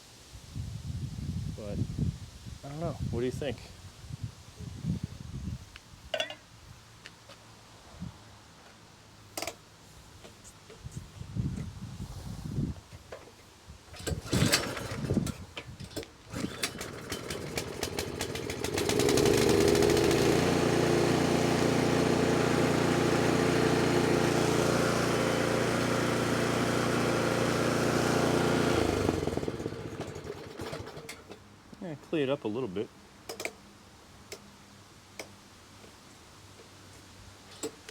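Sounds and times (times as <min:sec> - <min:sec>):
snowblower engine starting and running: 0:14.0 - 0:31.4.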